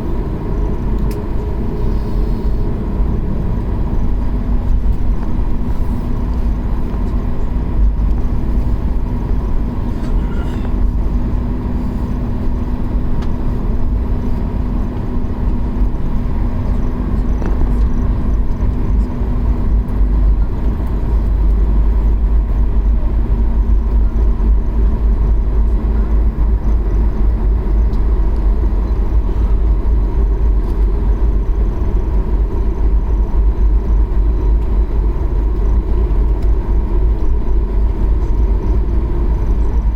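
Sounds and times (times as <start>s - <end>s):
thin jet whine: 0.0s - 14.9s
deep cabin rumble: 0.0s - 39.9s
low hum: 0.0s - 39.9s.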